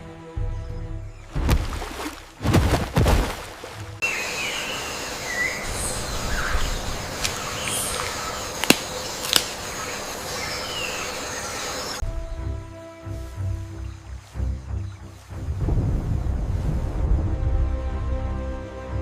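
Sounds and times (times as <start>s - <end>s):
bird chirps: 4.0s - 15.2s
sharp clicks: 7.2s - 9.6s.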